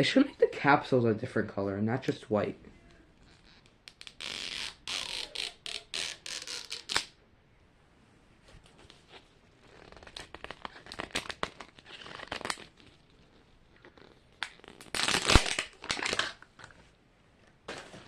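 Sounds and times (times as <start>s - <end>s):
plastic wrapping crinkling and tearing: 3.2s - 7.1s, 8.7s - 16.8s
plastic wrapping snap: 14.4s - 16.8s.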